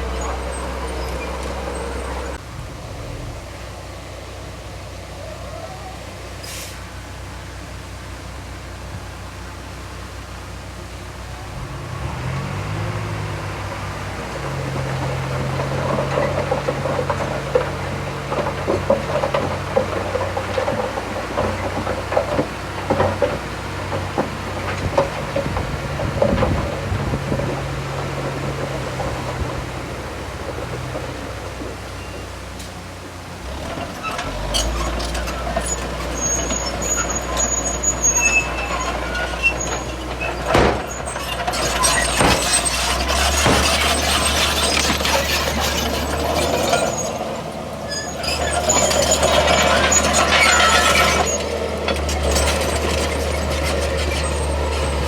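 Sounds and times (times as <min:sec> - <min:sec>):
diesel engine running: 0:00.0 - 0:55.0
metal knocks and clanks: 0:33.6 - 0:55.0.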